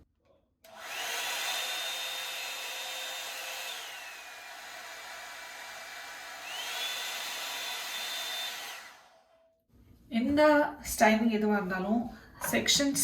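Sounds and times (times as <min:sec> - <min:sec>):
hair dryer motor whining: 0:00.7 - 0:09.3.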